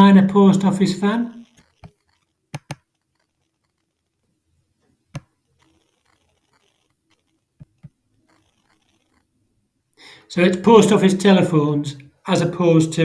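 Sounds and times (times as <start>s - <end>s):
computer mouse clicking: 1.4s - 3.8s.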